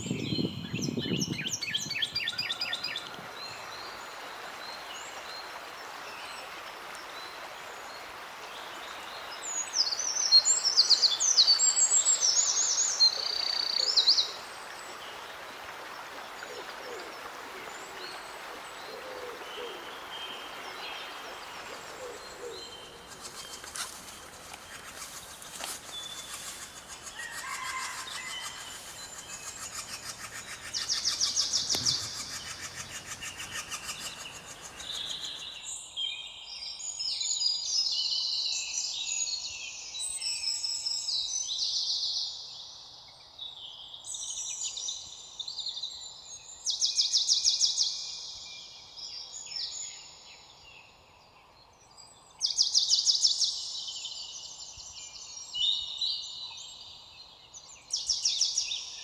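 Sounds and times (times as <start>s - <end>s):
background hiss: 21.5s - 35.6s
birds singing: 21.8s - 35.7s
loud rapid bird trills: 22.1s - 35.6s.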